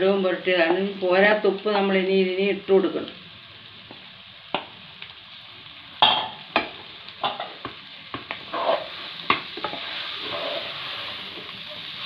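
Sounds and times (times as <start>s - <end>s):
food sizzling in oil: 0.0s - 12.0s
spatula scraping and knocking pan: 6.2s - 12.0s.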